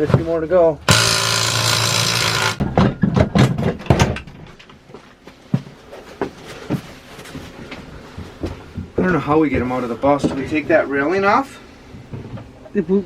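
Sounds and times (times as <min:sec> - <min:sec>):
power tool running: 0:00.9 - 0:02.6
knocks and clunks of hardware: 0:00.9 - 0:04.7.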